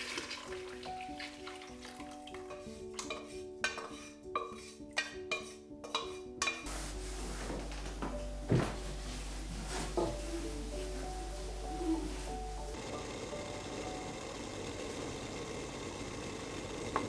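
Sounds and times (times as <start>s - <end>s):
soft slow piano music: 0.0s - 15.0s
utensil clinking against a dish: 2.0s - 6.7s.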